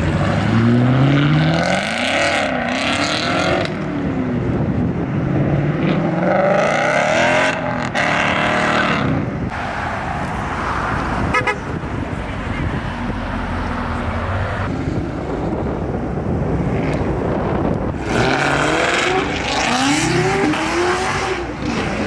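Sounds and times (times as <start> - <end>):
exhaust and tyre roar: 0.0 - 22.0
car engine revving: 5.8 - 22.0.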